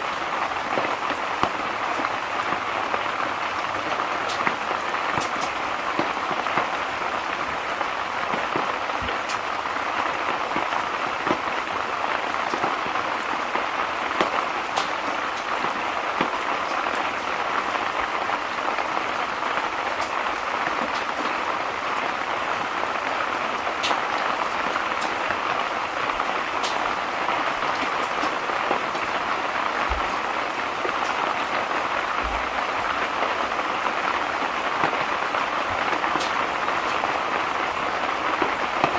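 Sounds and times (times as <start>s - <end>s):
sharp rain ticks: 0.0s - 38.9s
steady rain hiss: 0.0s - 38.9s.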